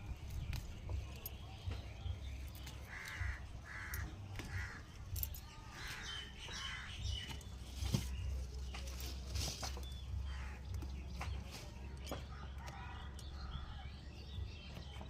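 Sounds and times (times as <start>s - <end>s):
crow cawing: 2.9s - 4.9s.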